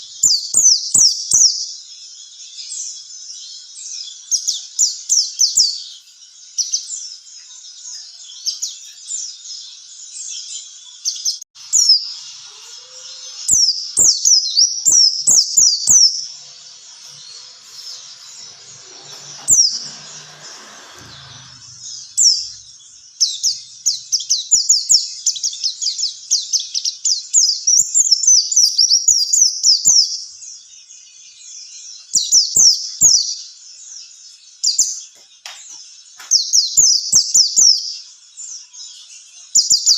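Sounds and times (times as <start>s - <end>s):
bird singing high thin chirps: 0.0s - 20.4s.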